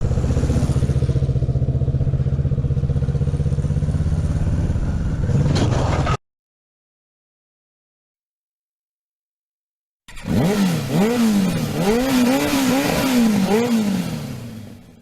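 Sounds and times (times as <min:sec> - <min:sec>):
motorcycle engine running: 0:00.0 - 0:05.4, 0:10.1 - 0:15.0.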